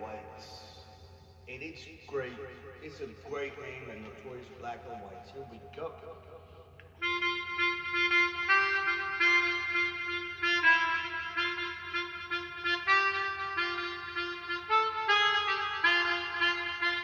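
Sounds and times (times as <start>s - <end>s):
melodica playing bouncy tune: 7.0s - 17.0s.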